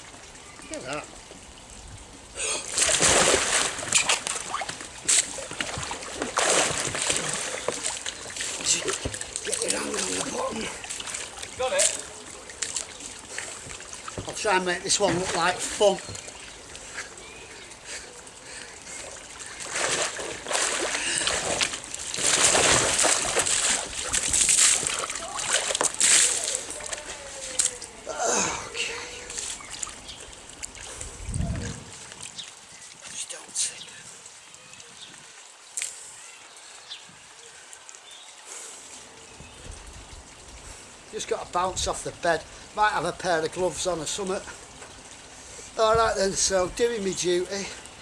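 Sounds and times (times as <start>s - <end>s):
water splashing around kayak: 2.4s - 27.9s.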